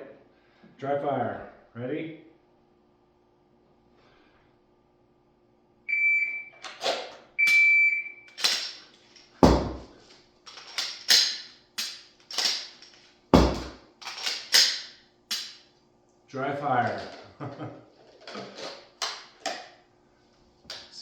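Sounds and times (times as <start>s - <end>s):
pistol clicks and clacks: 8.3s - 9.2s, 10.5s - 15.7s
heavy thumps: 9.4s - 10.0s, 13.4s - 13.8s.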